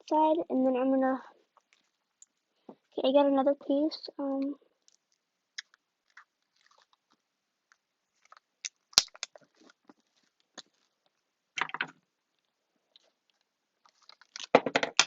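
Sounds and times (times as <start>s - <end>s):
crackling rustle: 1.5s - 2.3s, 4.8s - 11.2s, 12.3s - 14.6s
tape and craft pieces crinkling: 1.6s - 2.4s, 4.8s - 15.0s.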